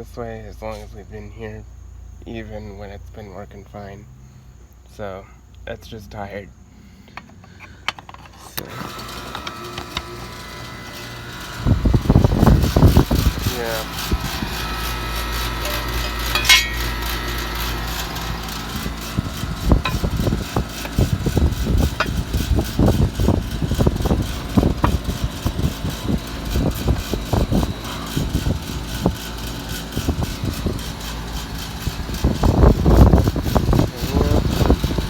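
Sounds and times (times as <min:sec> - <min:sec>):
air conditioner compressor hum: 0:00.0 - 0:35.0
low rumbling: 0:10.2 - 0:35.0.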